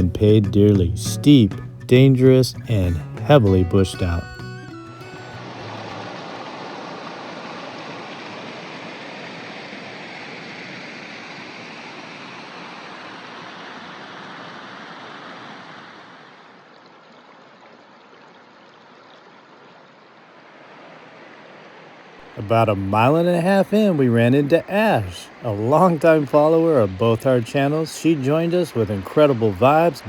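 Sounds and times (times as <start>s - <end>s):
creek water splashing over rocks: 5.4s - 9.5s, 12.6s - 30.0s.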